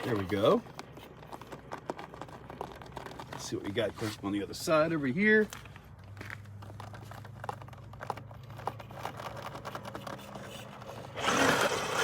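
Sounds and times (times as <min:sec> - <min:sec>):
motor and tires spinning up: 0:06.8 - 0:12.0.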